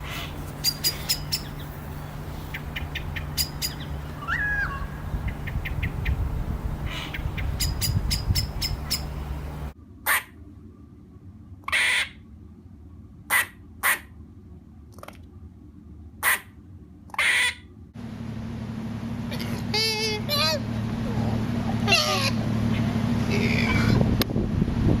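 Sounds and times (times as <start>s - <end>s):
low rumble: 0.0s - 11.6s, 18.0s - 25.0s
short squeaky animal calls: 2.8s - 5.6s
gliding whistle: 3.4s - 5.1s.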